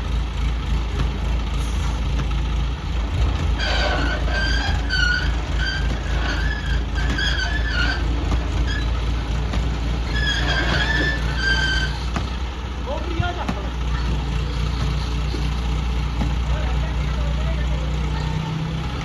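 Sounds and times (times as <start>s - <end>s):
diesel engine running: 0.0s - 19.0s
short high squeaks: 3.5s - 9.4s, 10.0s - 12.3s.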